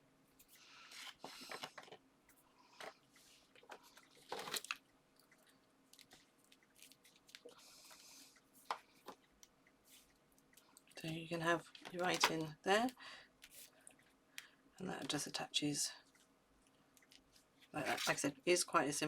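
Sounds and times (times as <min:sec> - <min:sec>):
card and paper rustling: 0:00.5 - 0:02.0, 0:02.8 - 0:04.8, 0:11.0 - 0:12.5, 0:17.7 - 0:18.2
paper crinkling: 0:02.8 - 0:04.8.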